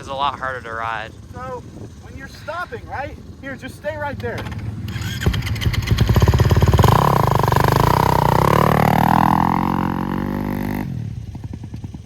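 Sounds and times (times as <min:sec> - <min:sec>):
dirt bike engine revving: 0:03.0 - 0:12.0.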